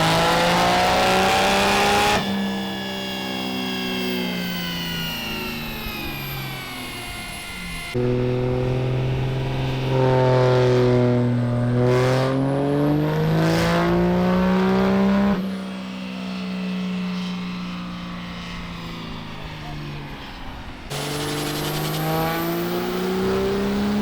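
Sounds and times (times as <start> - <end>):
pickup truck engine revving: 8.0 - 15.4, 20.9 - 24.0.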